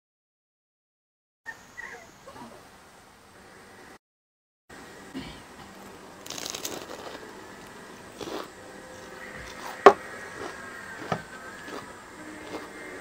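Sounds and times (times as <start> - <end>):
chewing crispy food crunches: 6.2 - 8.5, 9.4 - 12.7.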